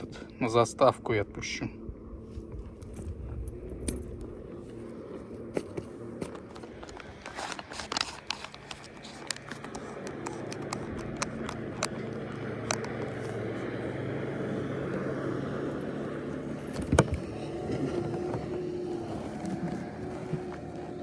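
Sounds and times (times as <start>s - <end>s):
boat motor running: 0.0s - 21.0s
clicks and knocks in boat: 16.5s - 21.0s.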